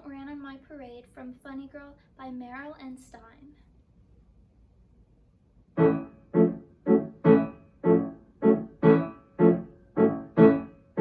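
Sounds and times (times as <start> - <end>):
piano repeated chords: 5.8 - 11.0.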